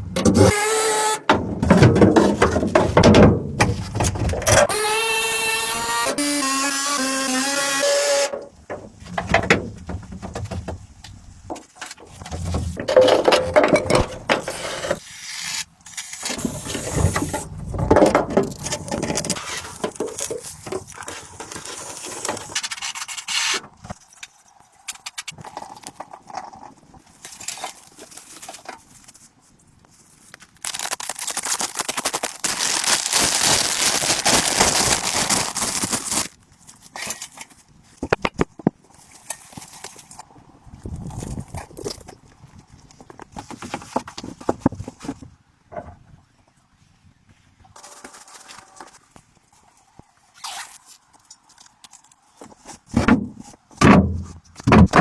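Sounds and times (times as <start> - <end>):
objects scraping and knocking: 1.3 - 4.6, 8.4 - 15.1, 16.2 - 29.4.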